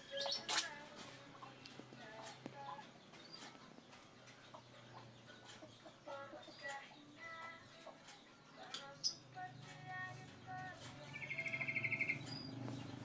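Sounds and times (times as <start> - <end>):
animal clucking and chirping: 0.0 - 13.0
small clicks: 7.4 - 11.6.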